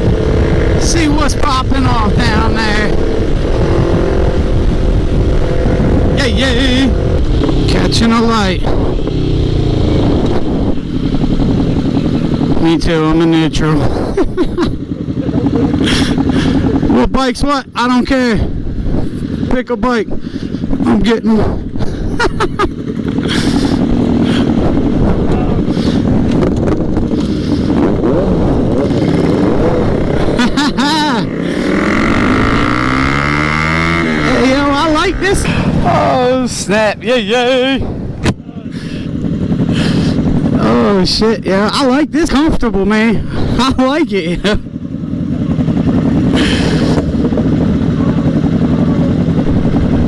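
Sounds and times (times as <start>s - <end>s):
wind buffeting microphone: 0.0s - 17.2s, 18.3s - 41.7s, 45.5s - 50.0s
motorcycle engine running: 0.0s - 50.0s.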